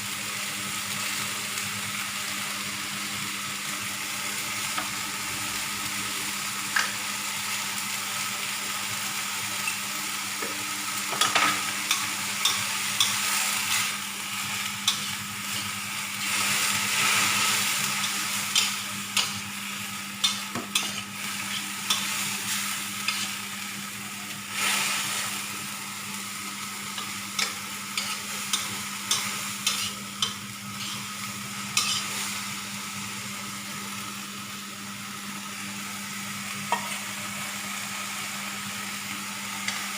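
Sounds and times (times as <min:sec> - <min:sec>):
food sizzling in a frying pan: 0:00.0 - 0:39.9
utensil scraping and clicking on pan: 0:18.0 - 0:19.4, 0:20.2 - 0:22.1, 0:23.0 - 0:23.3, 0:27.0 - 0:31.0, 0:31.8 - 0:32.0.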